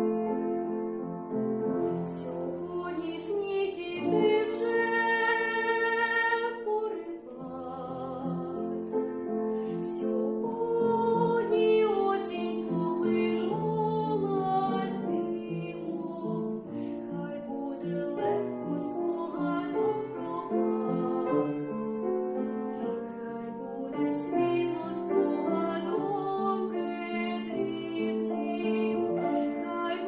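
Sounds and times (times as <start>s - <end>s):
keyboard accompaniment: 0.0s - 30.0s
woman singing gentle song: 2.0s - 9.2s, 9.8s - 22.0s, 22.9s - 30.0s.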